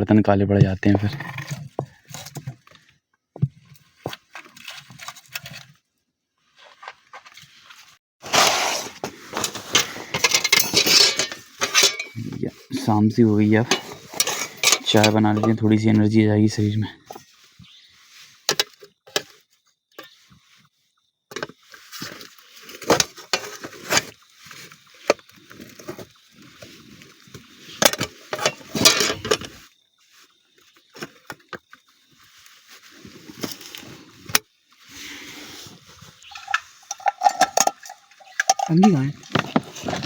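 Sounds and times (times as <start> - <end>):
metal pots clinking: 9.3 - 12.3, 13.6 - 15.7, 27.8 - 29.5, 36.2 - 40.0.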